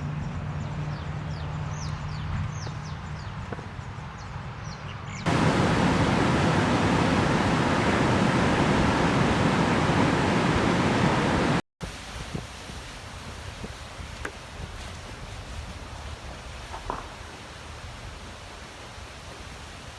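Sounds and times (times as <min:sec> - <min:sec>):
wind: 0:00.0 - 0:19.9
waterfall rushing: 0:05.3 - 0:14.7, 0:15.3 - 0:19.9
surf: 0:05.3 - 0:19.9.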